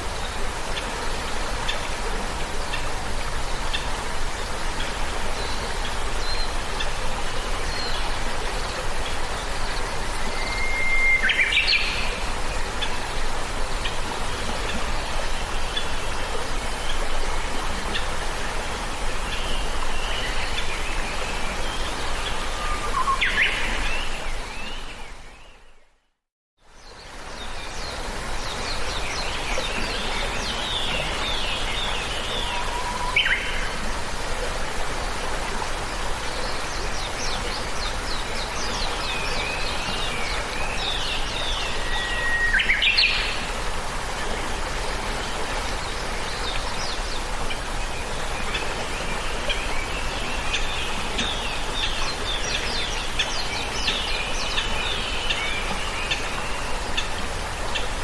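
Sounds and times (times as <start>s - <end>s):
steady background hiss: 0.0s - 25.8s, 26.6s - 58.0s.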